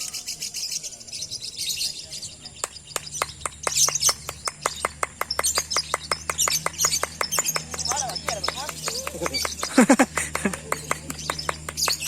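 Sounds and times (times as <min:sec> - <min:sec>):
birds chirping: 0:00.0 - 0:12.0
rapid sharp ticks: 0:02.6 - 0:12.0.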